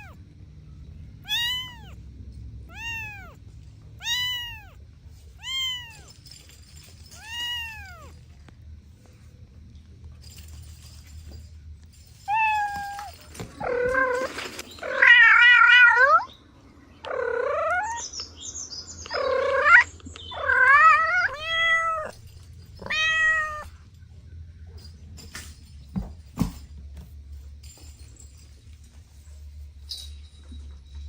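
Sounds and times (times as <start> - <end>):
cat meowing: 1.2 - 2.0, 2.7 - 3.4, 4.0 - 4.8, 5.4 - 6.2, 7.2 - 8.2, 17.0 - 18.0, 19.1 - 22.2, 22.8 - 23.8.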